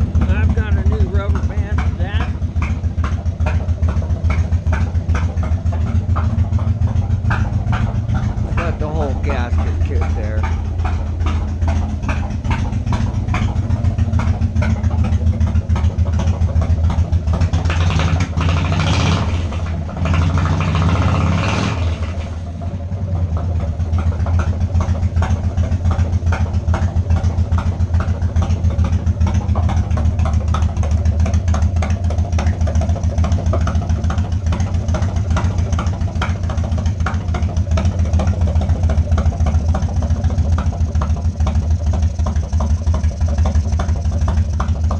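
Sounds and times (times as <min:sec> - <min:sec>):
motorcycle engine idling: 0:00.0 - 0:44.9.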